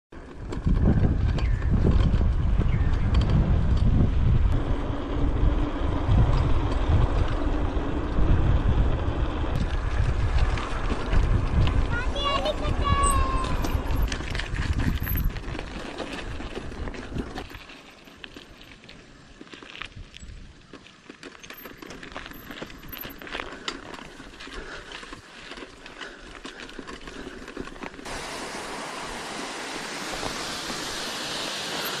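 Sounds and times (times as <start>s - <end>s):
bike rattling: 0.1s - 28.1s, 30.0s - 32.0s
low wind rumble: 0.2s - 18.4s
tyres crunching on dirt: 5.5s - 28.2s
steady hiss: 28.1s - 32.0s.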